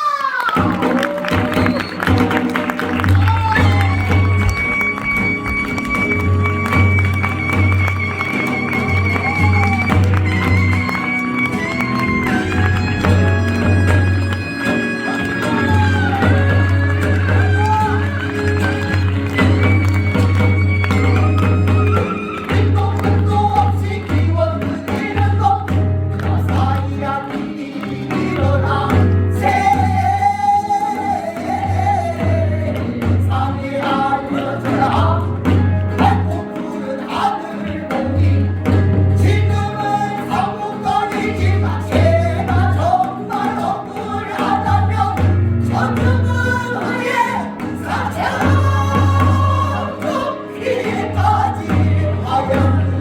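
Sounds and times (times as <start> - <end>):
instrumental accompaniment: 0.6 - 53.0
pulsing bass line: 3.0 - 22.0
voices singing together: 3.2 - 53.0.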